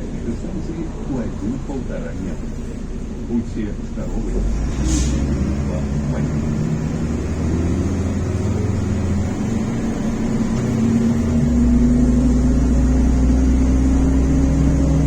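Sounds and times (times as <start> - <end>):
bus diesel engine humming: 0.0 - 15.0
engine whine rising in pitch: 4.2 - 15.0.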